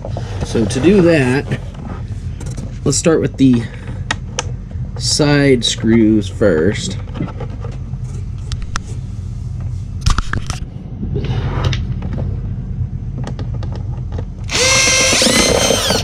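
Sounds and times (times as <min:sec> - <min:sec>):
steady low hum: 0:00.0 - 0:16.0
power drill driving screw: 0:14.5 - 0:16.0
screws and plastic lid clicking: 0:14.5 - 0:16.0.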